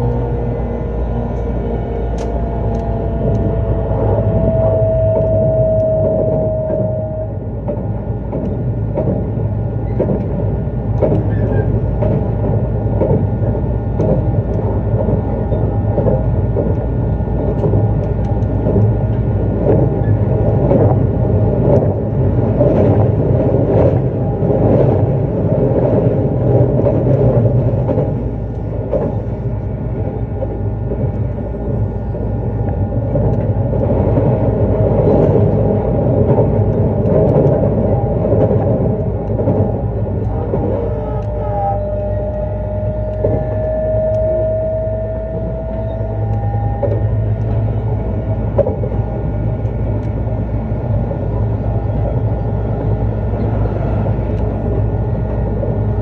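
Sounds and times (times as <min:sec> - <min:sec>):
train wheels rumbling on rail: 0:00.0 - 0:56.0
high tone: 0:03.9 - 0:07.6, 0:40.7 - 0:48.1.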